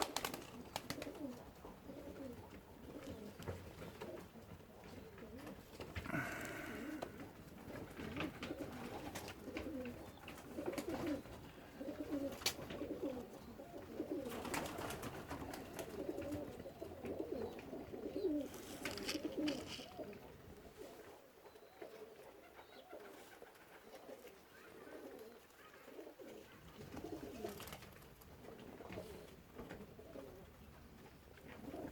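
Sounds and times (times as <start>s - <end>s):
pigeons cooing: 0.0s - 31.9s.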